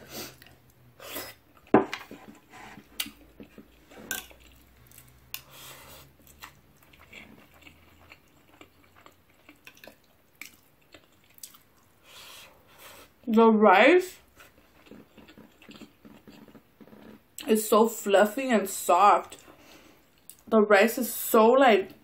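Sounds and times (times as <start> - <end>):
person chewing food: 0.2 - 13.2, 14.2 - 17.5, 19.3 - 20.4.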